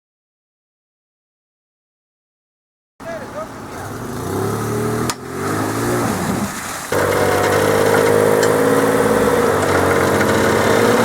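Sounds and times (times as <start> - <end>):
off-road vehicle engine running: 3.1 - 11.0.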